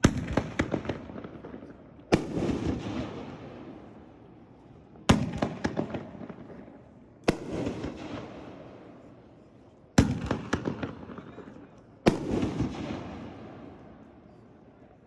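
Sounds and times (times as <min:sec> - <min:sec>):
fireworks booming: 0:00.0 - 0:04.0, 0:05.0 - 0:09.0, 0:10.0 - 0:13.8.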